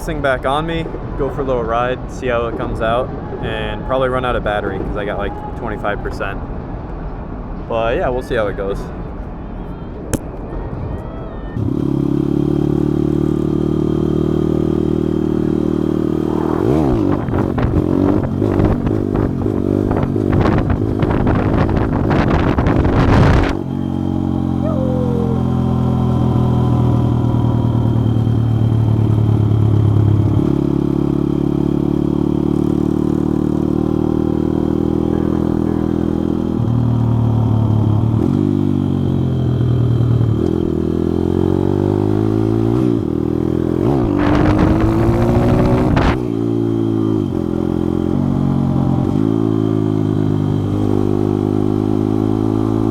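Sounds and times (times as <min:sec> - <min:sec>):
small motorbike engine running: 0:11.6 - 0:42.0, 0:43.8 - 0:46.4.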